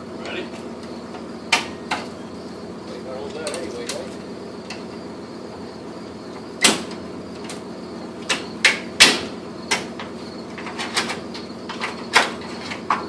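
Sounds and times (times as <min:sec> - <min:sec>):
steady low hum: 0:00.0 - 0:13.0
sharp knocks or clanks: 0:01.5 - 0:02.1, 0:06.6 - 0:07.6, 0:08.2 - 0:13.0.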